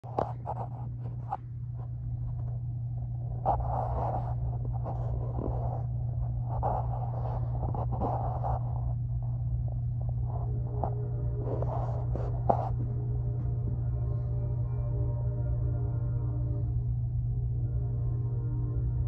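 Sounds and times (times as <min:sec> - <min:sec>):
muffled freight train rumble: 0:08.8 - 0:19.0.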